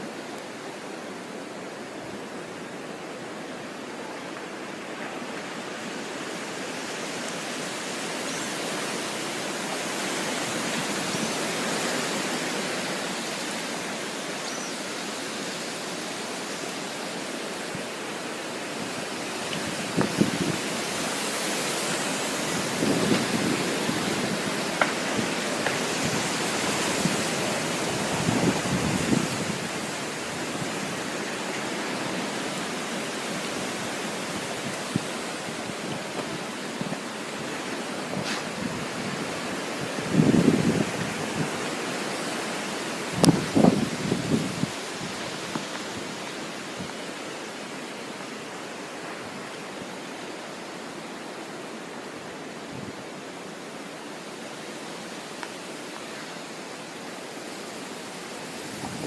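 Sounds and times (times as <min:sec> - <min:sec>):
strong wind blowing: 0:18.7 - 0:31.5, 0:33.4 - 0:41.9, 0:43.0 - 0:46.2, 0:58.4 - 0:59.0.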